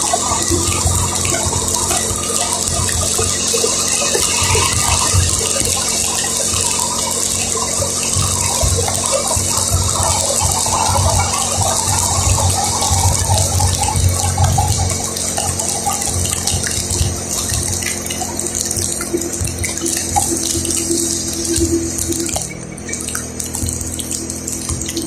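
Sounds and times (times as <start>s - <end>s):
low rumble: 0.0s - 25.0s
tyres hissing on wet road: 0.0s - 25.0s.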